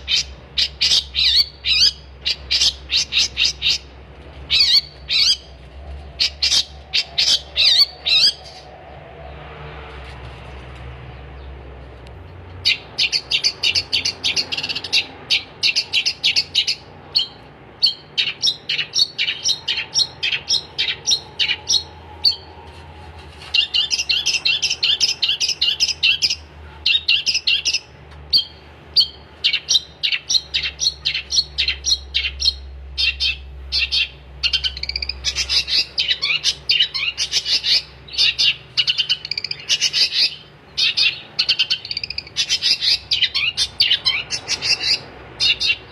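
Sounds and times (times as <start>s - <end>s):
bird singing chattering notes: 0.0s - 3.9s, 12.6s - 22.5s, 23.6s - 45.9s.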